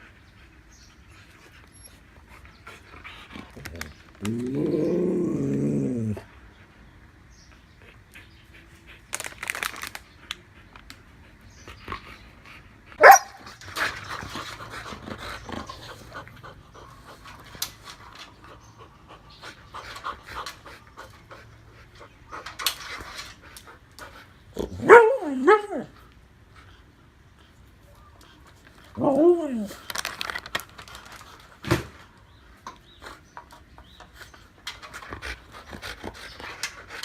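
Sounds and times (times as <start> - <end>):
dogs panting and snuffling: 0.0 - 37.0
dog barking: 13.0 - 13.4, 24.8 - 25.6.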